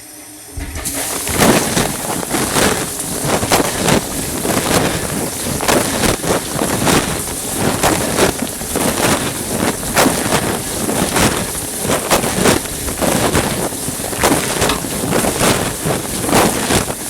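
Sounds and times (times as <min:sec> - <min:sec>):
dishwasher water jets spraying: 0:00.5 - 0:17.0
water splashes hitting plastic bag: 0:00.8 - 0:17.0.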